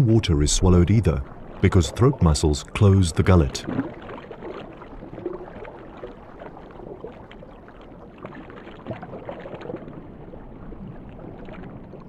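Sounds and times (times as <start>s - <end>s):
underwater clicks and bubbling: 0.0s - 12.0s
underwater wash: 0.0s - 12.0s.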